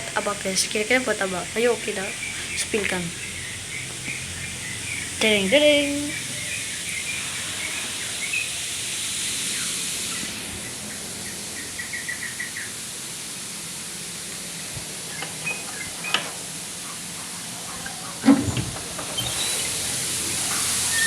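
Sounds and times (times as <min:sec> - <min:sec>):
steady high hiss: 0:00.0 - 0:21.0
small birds chirping: 0:00.4 - 0:08.6, 0:09.5 - 0:12.8, 0:14.5 - 0:18.3.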